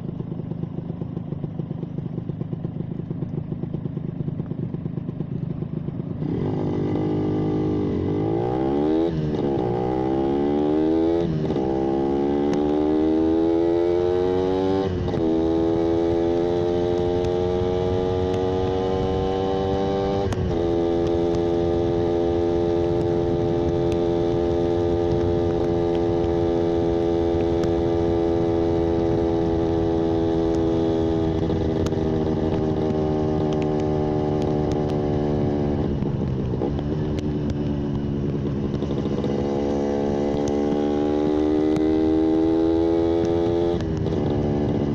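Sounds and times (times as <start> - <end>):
motorcycle engine accelerating: 0.0 - 44.9.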